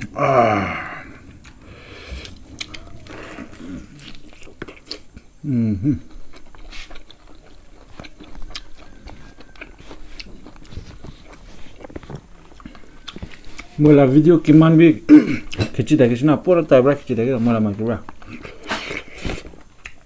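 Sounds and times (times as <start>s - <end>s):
short falling vocal sound: 0.0s - 1.2s
people chewing and biting: 0.0s - 14.7s, 16.5s - 20.0s.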